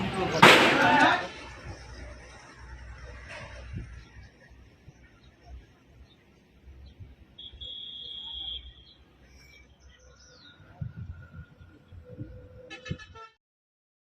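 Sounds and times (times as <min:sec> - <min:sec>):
roadside traffic rumble: 0:00.0 - 0:13.4
high steady whistle-like tone: 0:07.4 - 0:09.7
short horn toot: 0:12.7 - 0:13.4.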